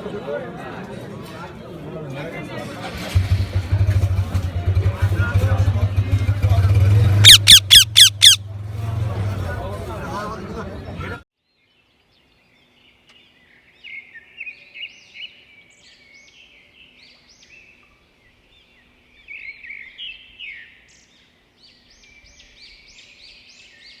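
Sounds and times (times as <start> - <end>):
birds chirping: 2.9 - 11.2.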